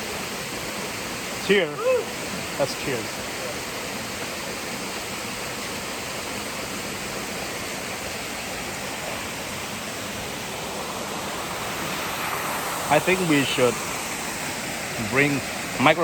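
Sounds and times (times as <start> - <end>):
waterfall crashing into pool: 0.0 - 16.0.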